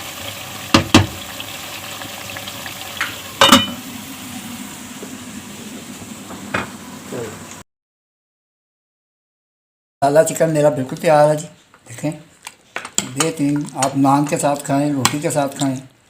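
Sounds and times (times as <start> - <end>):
chicken sizzling in a pan: 0.0 - 7.6.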